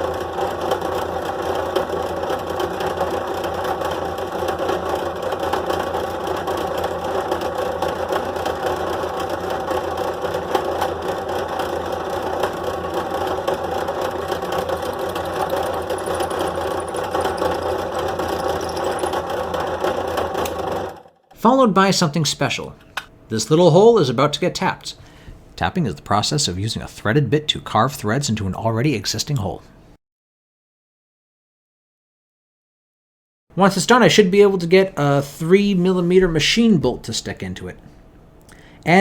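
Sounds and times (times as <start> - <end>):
drill press cutting plastic: 0.0 - 21.5.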